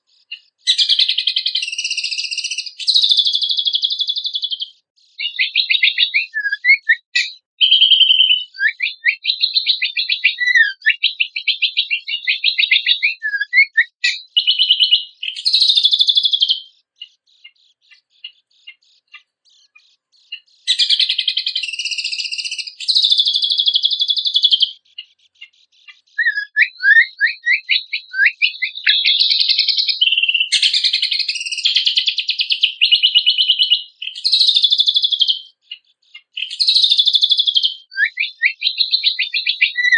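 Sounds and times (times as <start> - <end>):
songbird singing trills and whistles: 0.0 - 39.9.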